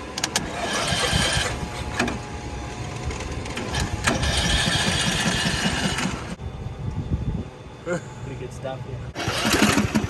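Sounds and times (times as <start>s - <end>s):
lawn mower engine start attempt: 0.2s - 2.2s, 2.9s - 6.4s, 9.2s - 10.0s.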